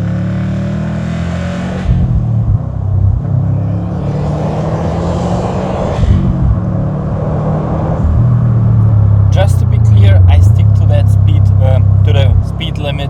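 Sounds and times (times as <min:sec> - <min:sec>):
road noise: 0:00.0 - 0:13.0
car engine deep exhaust note: 0:08.6 - 0:13.0.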